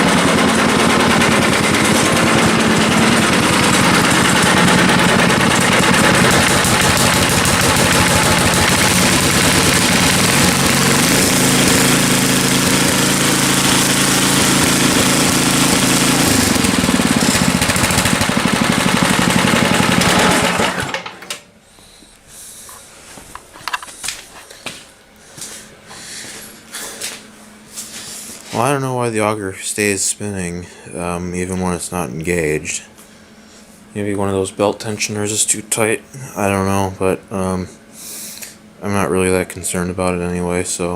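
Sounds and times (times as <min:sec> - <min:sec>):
snowblower engine running: 0:00.0 - 0:21.4.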